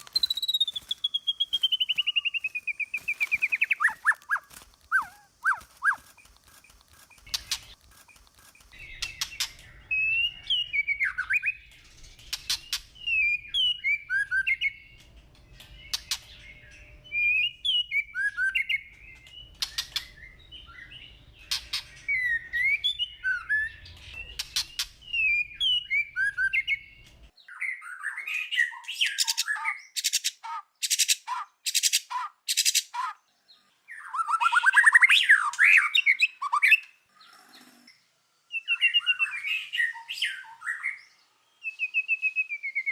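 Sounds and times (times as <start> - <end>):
bird whistled song phrases: 0.0 - 6.2, 13.0 - 15.0, 17.1 - 21.1, 33.9 - 36.9, 38.5 - 42.9
sharp bird clicks: 0.0 - 9.8, 11.6 - 13.0, 14.9 - 16.4, 18.8 - 20.2, 23.9 - 25.1.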